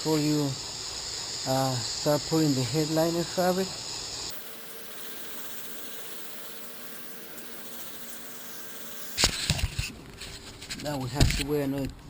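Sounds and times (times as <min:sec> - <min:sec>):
faint hum: 0:04.3 - 0:09.2.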